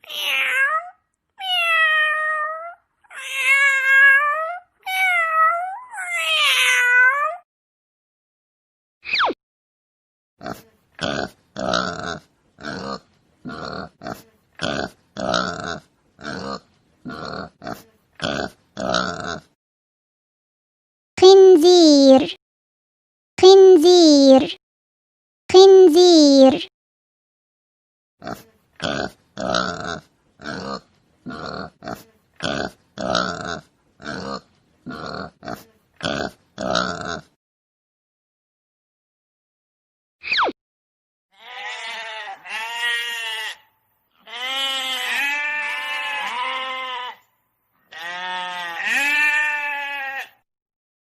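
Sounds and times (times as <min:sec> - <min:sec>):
pig grunting: 0:10.4 - 0:19.6, 0:28.2 - 0:37.4.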